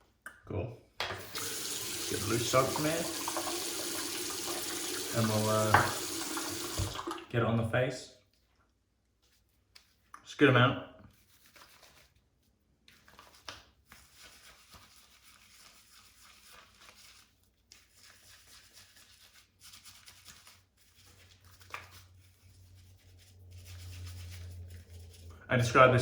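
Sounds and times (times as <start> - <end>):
shaving brush bristles swishing: 13.8 - 26.0.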